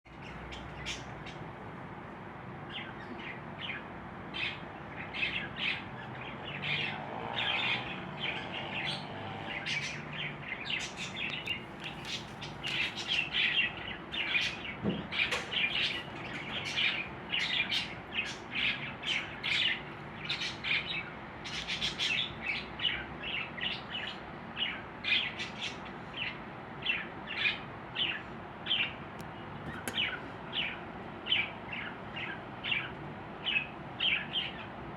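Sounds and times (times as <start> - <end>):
budgerigars chirping: 9.6 - 29.0.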